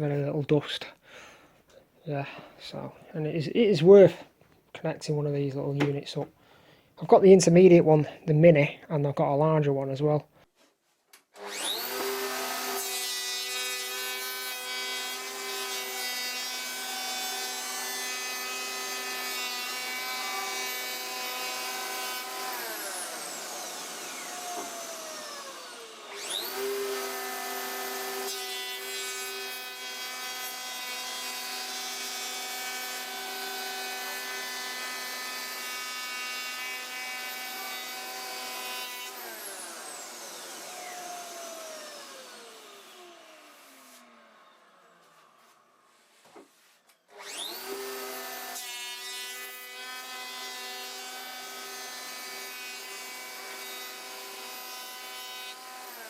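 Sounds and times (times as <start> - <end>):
electric planer planing wood: 11.4 - 56.0.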